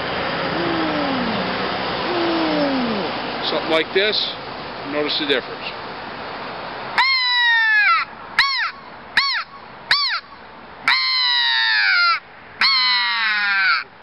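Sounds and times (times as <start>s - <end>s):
crow call caws: 2.1s - 3.2s, 7.0s - 10.3s, 10.9s - 13.9s.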